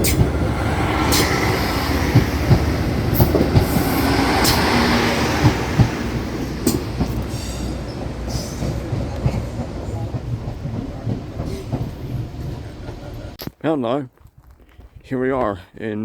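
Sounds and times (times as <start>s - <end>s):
low train rumble: 0.0s - 13.4s
train wheels clicking on track: 0.0s - 13.4s.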